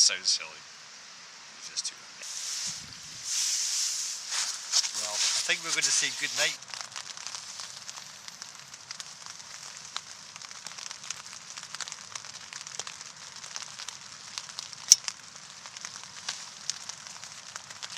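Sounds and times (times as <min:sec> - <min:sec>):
steady crackling with hiss: 0:00.0 - 0:17.9
sharp pops: 0:02.2 - 0:09.8.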